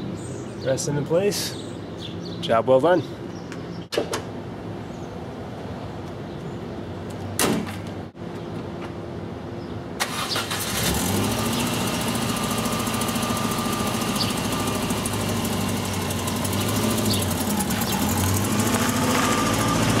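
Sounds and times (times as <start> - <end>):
car engine running: 11.0 - 20.0.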